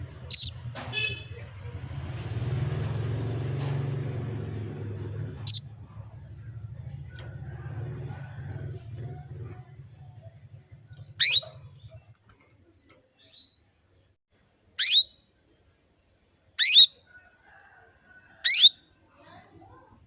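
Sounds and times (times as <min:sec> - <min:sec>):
canary chirping: 0:00.1 - 0:01.9, 0:03.3 - 0:14.1, 0:14.7 - 0:15.3, 0:16.5 - 0:17.1, 0:18.4 - 0:18.8.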